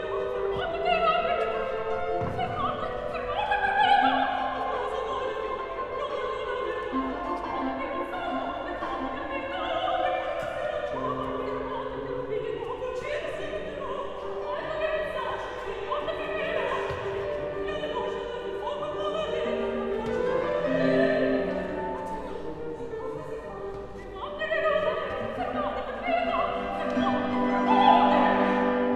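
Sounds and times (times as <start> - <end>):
operatic singing: 0.0 - 28.9
orchestra playing: 26.6 - 28.9.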